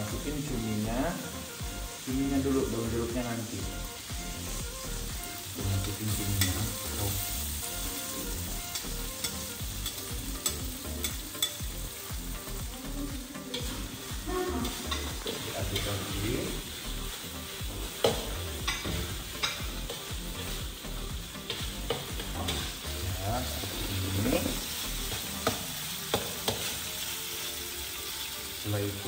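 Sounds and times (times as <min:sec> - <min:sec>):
squid sizzling in hot oil: 0:00.0 - 0:29.0
metal spatula scraping a wok: 0:05.3 - 0:11.6.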